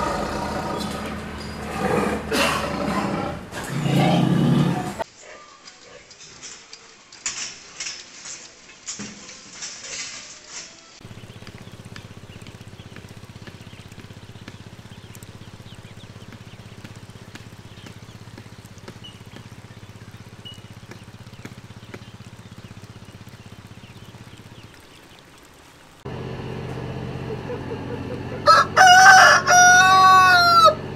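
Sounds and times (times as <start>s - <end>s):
steady low hum: 11.0s - 24.9s
ducklings peeping: 11.1s - 25.5s.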